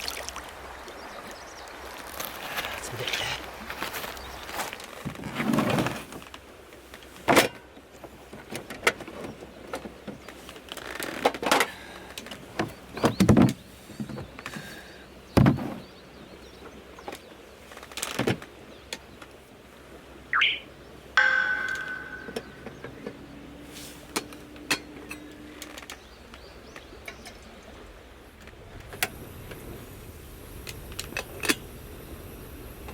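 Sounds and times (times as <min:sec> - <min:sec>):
short ringing tone: 0:20.4 - 0:22.8
rising chirp: 0:20.4 - 0:23.0.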